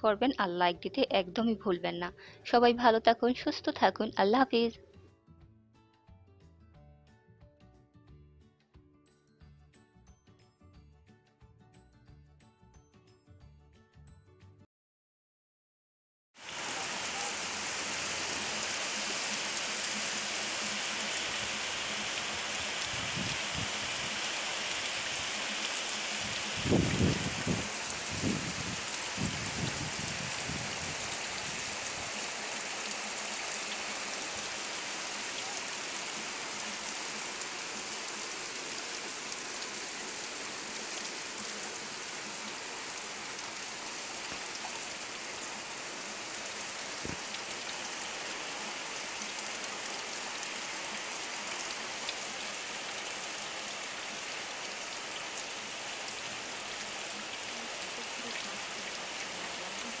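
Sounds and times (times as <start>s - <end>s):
heavy rain on concrete and trees: 16.4s - 60.0s.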